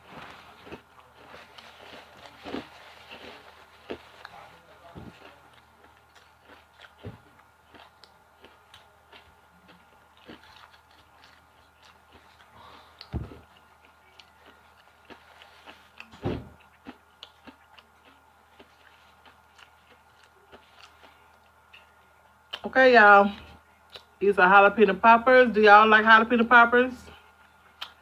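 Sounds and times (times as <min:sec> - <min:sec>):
person chewing crispy chicken: 0:00.0 - 0:22.6
dull thumps: 0:13.1 - 0:13.5.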